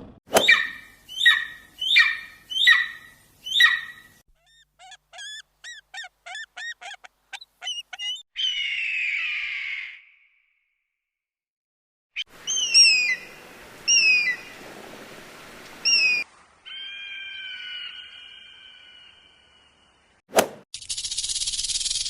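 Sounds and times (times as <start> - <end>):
bird harsh screech: 0.3 - 10.0
bird harsh squawks: 0.3 - 10.2
bird chittering notes: 0.4 - 9.1, 20.8 - 22.0.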